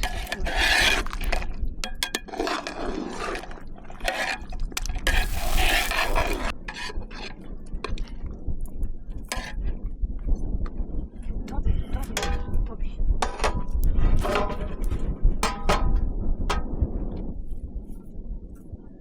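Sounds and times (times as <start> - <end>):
utensils scraping and clinking pot: 5.1 - 6.5.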